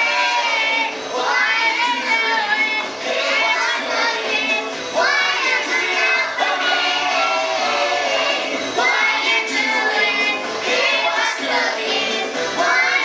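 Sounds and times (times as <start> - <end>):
backing music: 0.0 - 13.0
children singing: 0.0 - 13.0.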